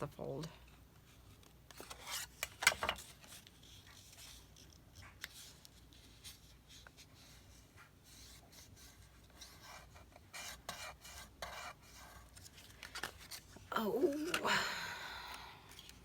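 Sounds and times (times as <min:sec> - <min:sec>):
paper rubbing and rustling: 0:01.7 - 0:14.4.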